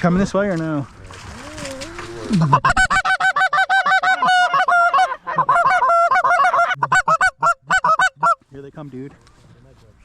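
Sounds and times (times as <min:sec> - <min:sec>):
goose honking and clucking: 0:01.6 - 0:08.4.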